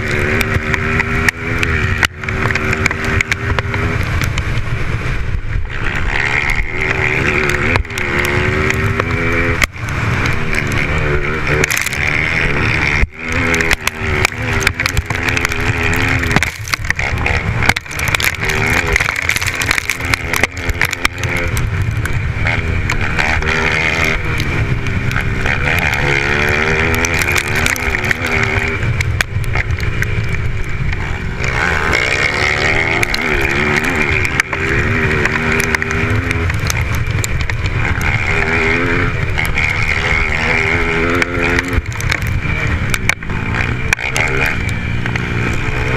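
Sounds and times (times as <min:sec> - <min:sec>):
dirt bike engines revving: 0:00.0 - 0:45.9.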